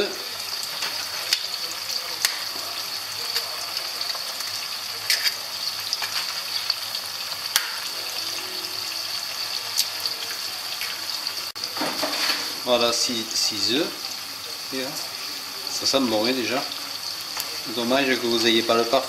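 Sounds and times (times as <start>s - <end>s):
oil sizzling in a pan: 0.0s - 19.0s.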